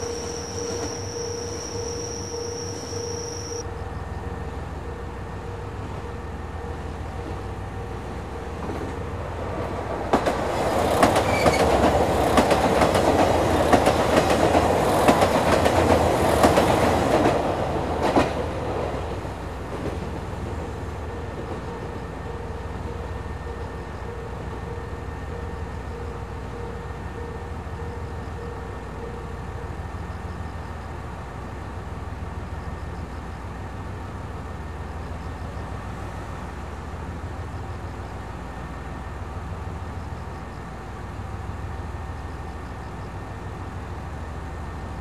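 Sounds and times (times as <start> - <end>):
train wheels clacking over joints: 10.1 - 18.4.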